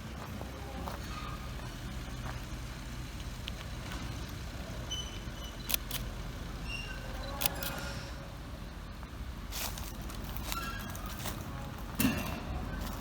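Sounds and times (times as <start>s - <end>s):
train engine idling: 0.0s - 13.0s
sharp clicks: 5.6s - 6.1s.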